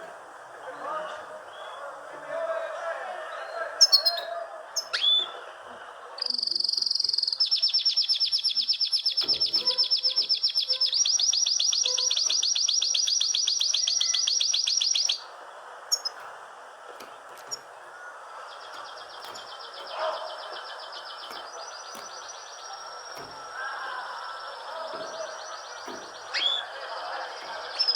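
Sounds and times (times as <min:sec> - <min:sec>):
songbird rapid high trill: 0:06.3 - 0:15.2, 0:18.4 - 0:27.9.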